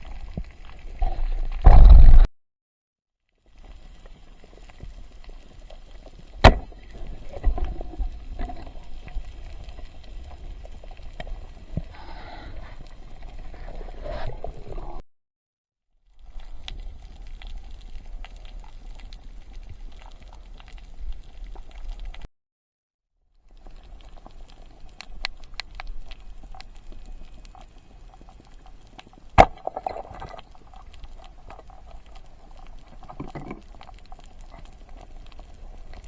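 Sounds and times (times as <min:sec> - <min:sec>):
water sloshing and gurgling: 0:06.2 - 0:15.0, 0:23.6 - 0:36.0.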